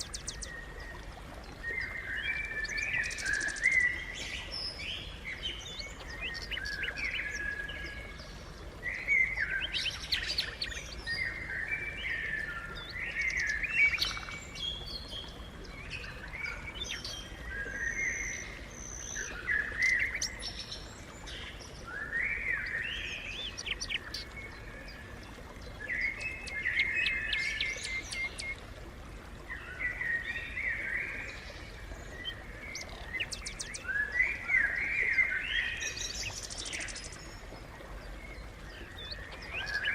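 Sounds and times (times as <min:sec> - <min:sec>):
sparrows chirping: 0:23.4 - 0:24.2.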